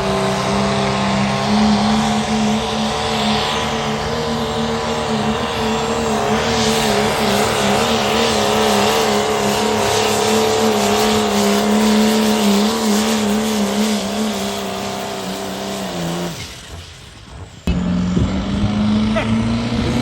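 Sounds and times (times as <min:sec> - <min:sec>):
loud engine sound: 0:00.0 - 0:20.0
truck engine at high revs: 0:00.0 - 0:20.0.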